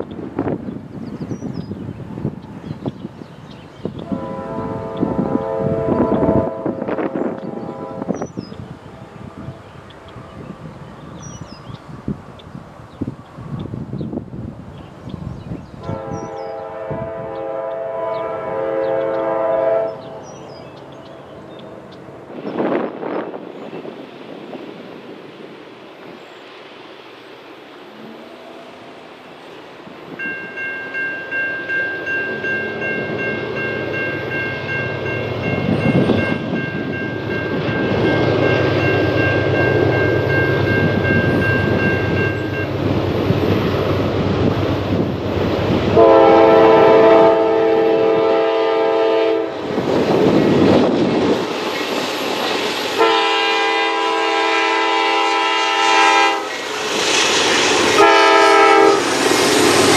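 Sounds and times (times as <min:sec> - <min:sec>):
diesel train rumble: 0:00.0 - 0:59.9
locomotive air horn blasts: 0:04.0 - 0:08.2, 0:15.8 - 0:20.2, 0:45.9 - 0:49.6, 0:53.0 - 0:56.6, 0:58.0 - 0:59.1
crossing bell dinging: 0:30.1 - 0:43.1.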